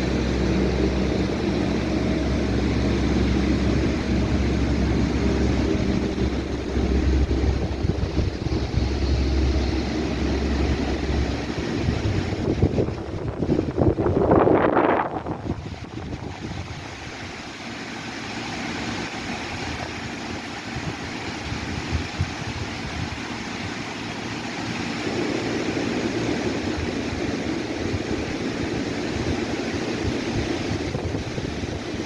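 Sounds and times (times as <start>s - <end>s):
wind rumbling on microphone: 0.0s - 32.0s
wind rustling leaves: 0.0s - 32.0s.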